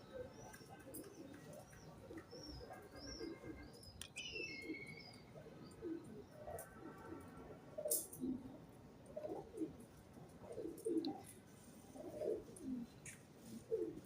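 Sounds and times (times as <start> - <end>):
small birds chirping: 0.0 - 6.8
pigeons cooing: 0.0 - 14.0.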